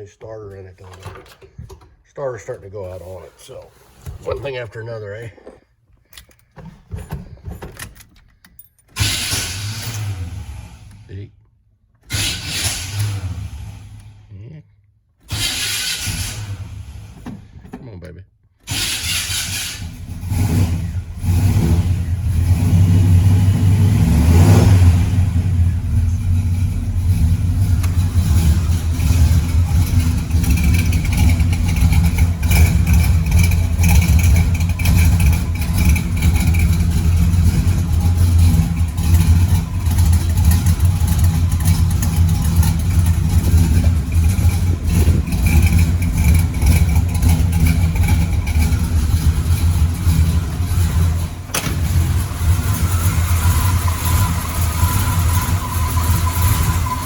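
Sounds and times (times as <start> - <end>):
pickup truck engine revving and idling: 9.0 - 11.2, 12.1 - 14.3, 15.3 - 17.2, 18.7 - 57.0.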